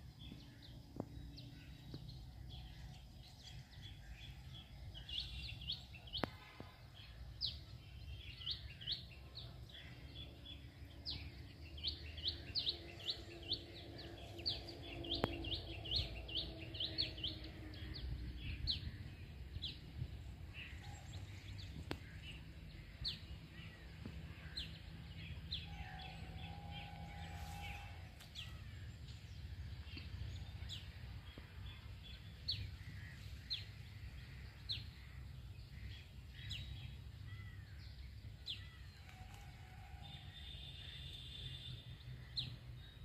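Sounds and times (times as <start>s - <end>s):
birds chirping and calling: 0.1s - 43.0s
steady low rumble: 6.9s - 38.8s.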